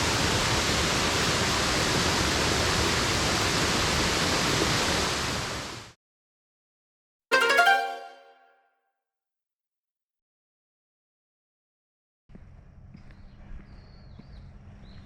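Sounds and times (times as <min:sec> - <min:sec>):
bright struck musical note: 0:07.3 - 0:08.6.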